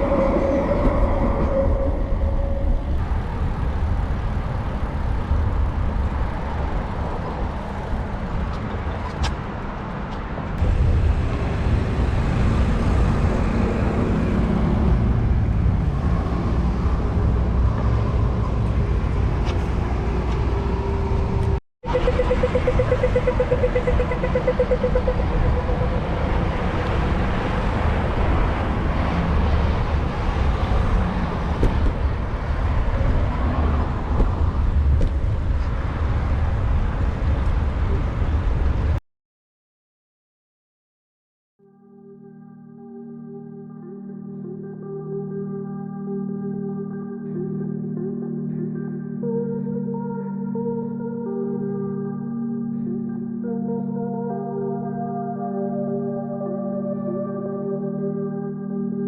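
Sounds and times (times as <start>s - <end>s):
wind on microphone: 0.0s - 9.6s, 22.2s - 39.0s
passing road traffic: 0.0s - 39.0s.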